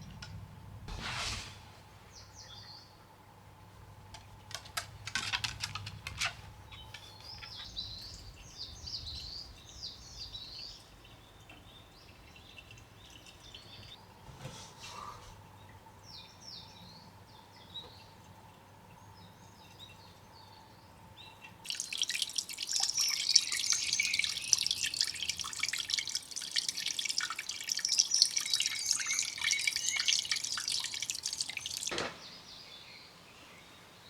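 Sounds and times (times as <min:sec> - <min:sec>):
rustle: 0:00.0 - 0:03.0
small birds chirping: 0:06.6 - 0:14.0, 0:18.9 - 0:34.0.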